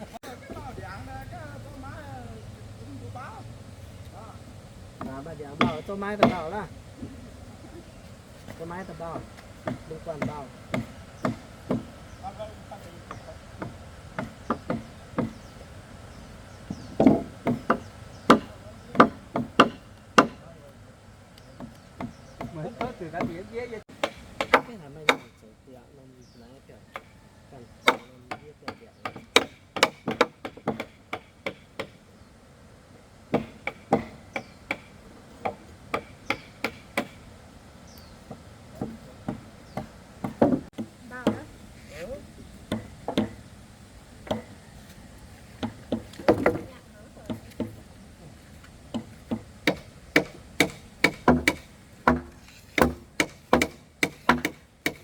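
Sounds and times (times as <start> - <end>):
hand tool chopping wood: 5.0 - 7.1, 8.4 - 12.0, 13.0 - 15.5, 16.8 - 20.5, 21.4 - 25.4, 27.8 - 32.0, 33.3 - 37.2, 38.3 - 41.5, 44.2 - 44.6, 45.6 - 47.8, 48.9 - 55.0.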